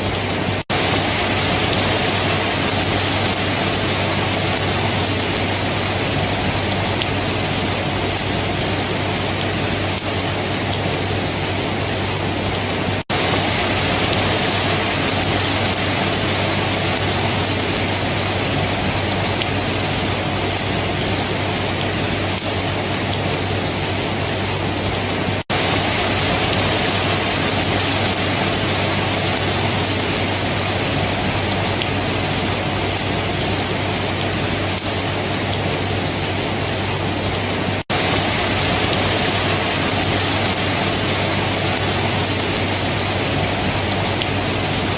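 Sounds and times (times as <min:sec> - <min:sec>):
heavy rainfall: 0:00.0 - 0:44.9.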